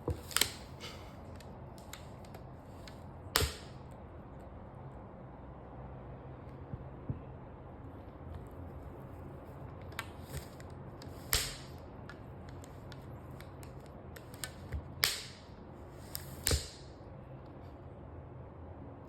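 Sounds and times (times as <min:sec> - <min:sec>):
rubber band snapping against book: 0:03.3 - 0:03.8, 0:09.9 - 0:15.5, 0:16.1 - 0:16.9.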